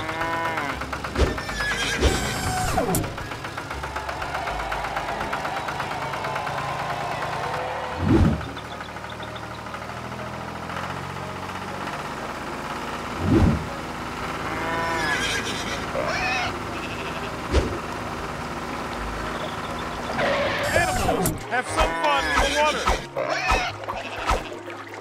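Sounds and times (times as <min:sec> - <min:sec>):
tractor engine running: 0:00.0 - 0:25.0
animal calls: 0:19.5 - 0:24.5.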